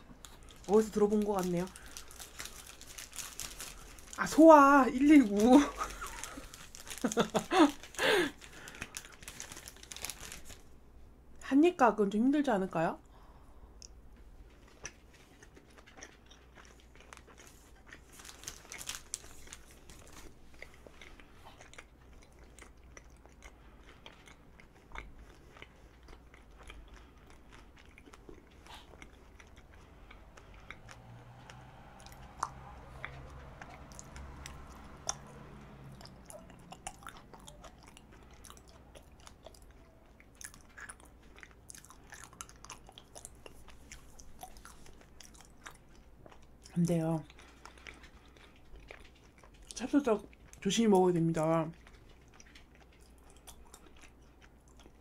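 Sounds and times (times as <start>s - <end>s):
wet chewing mouth sounds: 13.8s - 50.8s, 51.7s - 55.0s.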